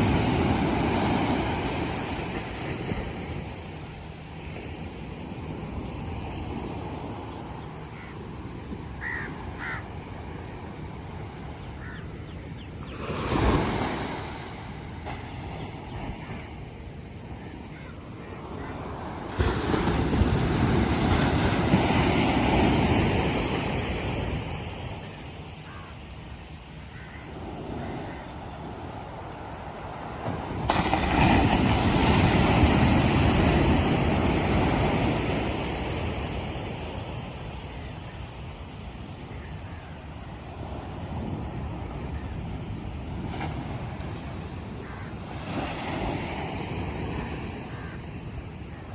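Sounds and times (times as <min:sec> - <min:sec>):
ocean wave breaking on beach: 0:00.0 - 0:05.6, 0:18.8 - 0:25.0, 0:27.8 - 0:37.8
ocean surf on beach: 0:00.0 - 0:48.9.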